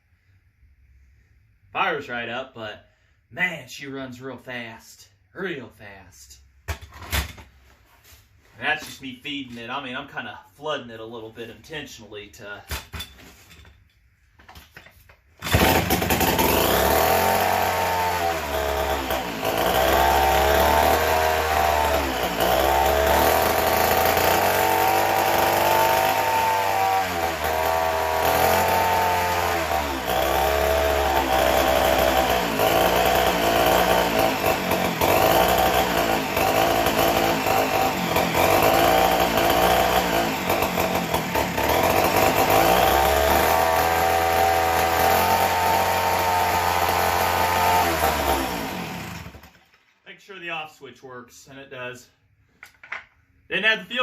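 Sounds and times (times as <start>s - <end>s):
chainsaw revving: 15.4s - 49.7s.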